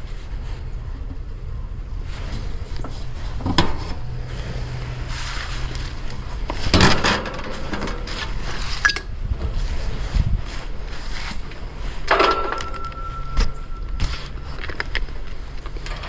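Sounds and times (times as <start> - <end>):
steady low hum: 0.0 - 16.0
hard objects knocking and clattering: 12.1 - 14.9.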